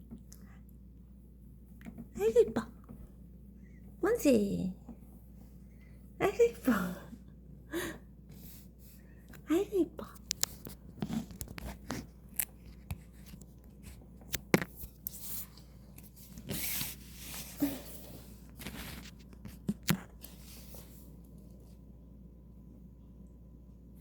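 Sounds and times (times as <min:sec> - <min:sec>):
light clicks and taps: 0:09.3 - 0:16.1
scratchy rustling: 0:10.3 - 0:21.2.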